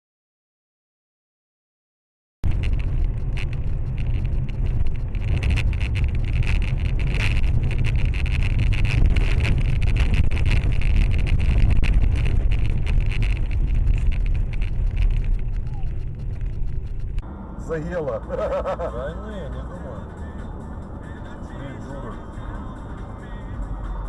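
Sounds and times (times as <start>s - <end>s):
crackling and rattling: 2.4s - 17.2s
car road and engine rumble: 2.4s - 24.0s.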